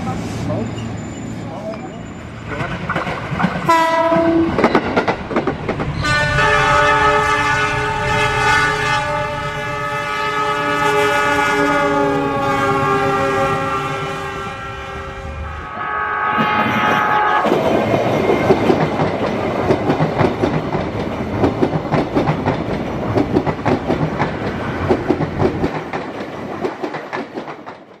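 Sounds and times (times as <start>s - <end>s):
train wheels clattering: 2.5s - 6.2s, 16.4s - 28.0s
train horn: 3.7s - 4.6s, 6.0s - 17.6s.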